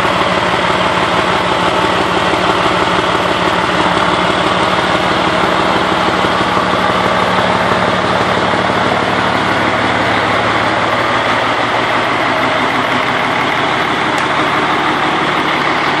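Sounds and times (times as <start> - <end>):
unmuffled diesel truck engine: 0.0 - 16.0.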